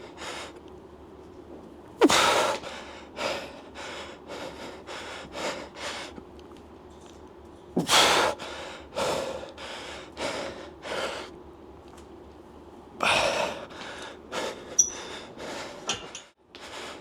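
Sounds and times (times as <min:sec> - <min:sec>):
person gasping sharply: 0:02.0 - 0:02.4
person breathing heavily: 0:02.0 - 0:05.9, 0:13.0 - 0:15.9.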